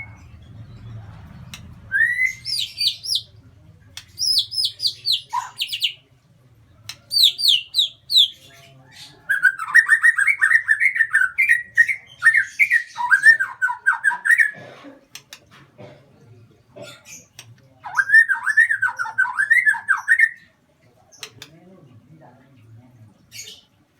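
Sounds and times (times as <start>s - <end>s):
bird chirping and chattering: 0.0s - 6.1s, 6.8s - 15.5s, 16.8s - 20.5s, 21.1s - 21.5s, 23.3s - 23.7s
faint clicks: 1.1s - 1.9s, 3.9s - 4.3s, 6.8s - 7.2s, 15.1s - 15.6s, 21.2s - 21.6s.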